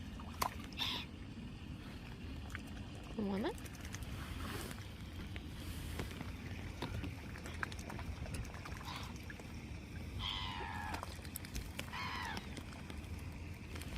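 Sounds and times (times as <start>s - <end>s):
young swans calling: 0.8s - 1.2s, 10.1s - 11.2s, 11.8s - 12.6s.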